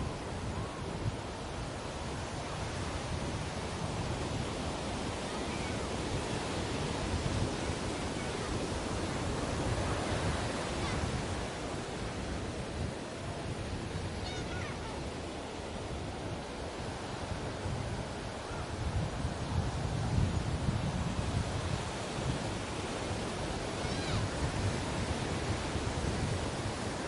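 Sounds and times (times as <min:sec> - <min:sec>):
sea waves breaking on a beach: 0:00.0 - 0:27.0.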